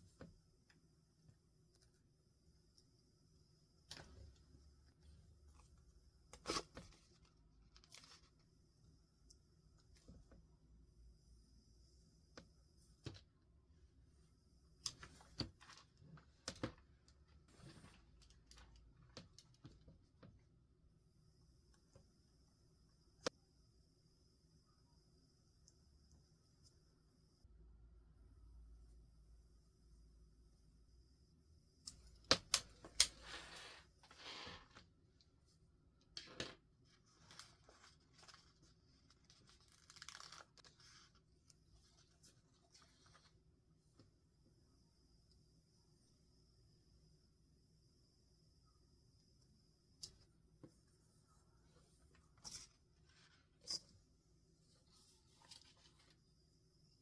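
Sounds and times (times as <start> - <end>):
soft paper rustle: 5.0 - 8.5, 36.2 - 43.5, 54.7 - 56.3
paper crinkling and rustling: 36.8 - 41.2.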